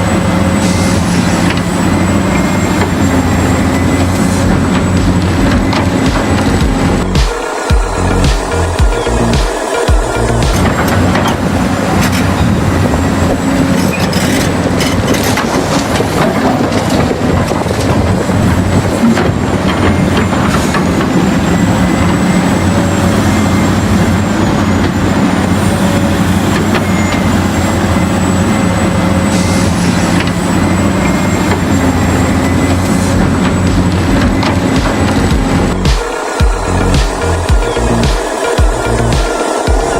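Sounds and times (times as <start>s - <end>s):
thin high whine: 0.0s - 14.4s, 25.0s - 39.9s
engine drone: 0.0s - 39.9s.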